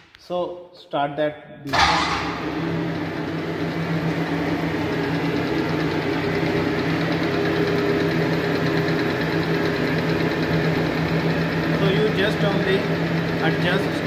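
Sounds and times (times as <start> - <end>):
lathe motor humming: 2.0 - 14.0.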